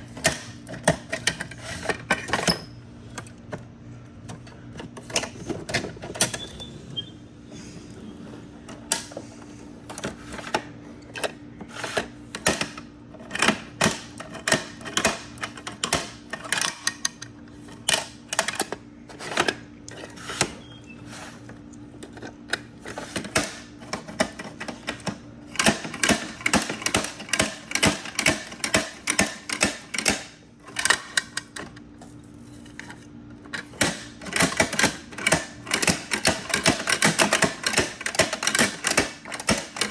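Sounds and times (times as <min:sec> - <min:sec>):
toy trucks clicking and clacking: 0:34.2 - 0:39.9.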